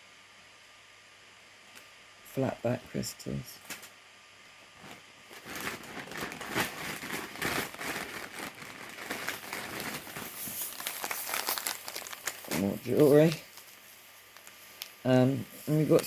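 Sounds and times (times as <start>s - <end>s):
packaging crinkling: 4.8s - 15.1s.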